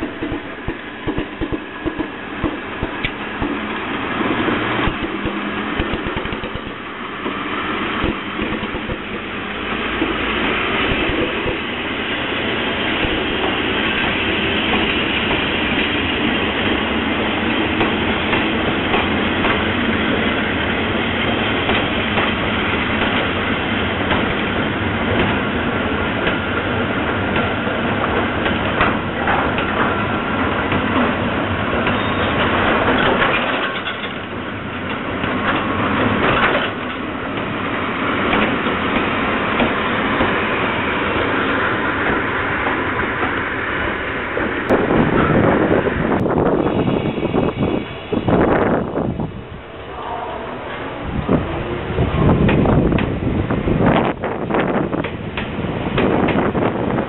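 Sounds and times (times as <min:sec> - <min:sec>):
wheels clacking over rail joints: 0:00.0 - 0:12.0, 0:17.4 - 0:20.4, 0:21.2 - 0:40.5
train wheels rumbling on rails: 0:00.0 - 0:57.0.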